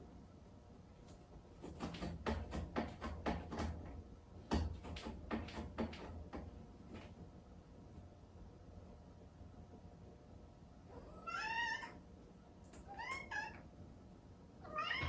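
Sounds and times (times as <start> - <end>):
door knocking and rattling: 1.7 - 6.6.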